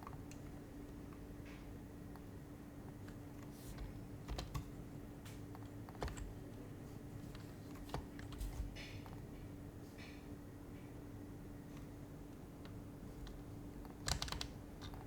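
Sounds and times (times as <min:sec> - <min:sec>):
faint steady hum: 0:00.0 - 0:15.0
keyboard keystrokes: 0:03.8 - 0:04.7, 0:05.6 - 0:06.4, 0:13.2 - 0:15.0.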